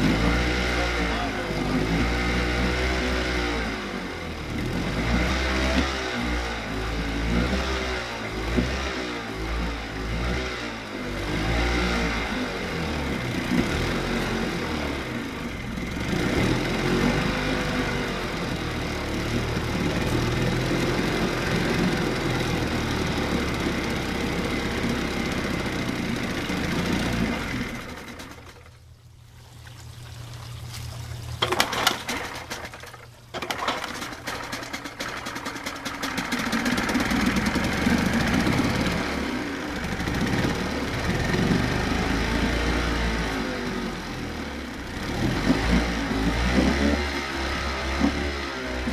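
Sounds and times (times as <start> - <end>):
outboard motor running: 0.0 - 48.9
sharp clattering: 31.4 - 36.9.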